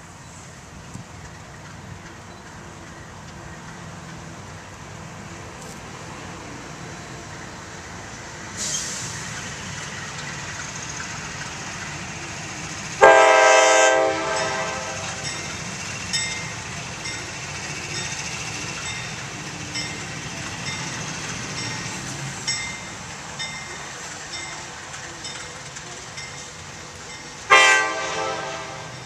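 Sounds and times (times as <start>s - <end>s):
train rumbling past: 0.0s - 29.0s
train hiss: 2.4s - 29.0s
locomotive horn blast: 13.0s - 15.3s, 27.5s - 29.0s.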